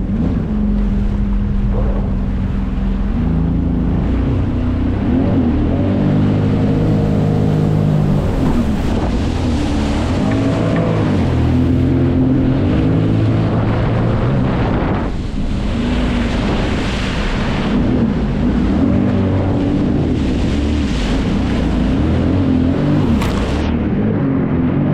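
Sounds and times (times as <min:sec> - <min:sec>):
jet ski engine running: 0:00.0 - 0:24.9
wind on microphone: 0:00.0 - 0:24.9.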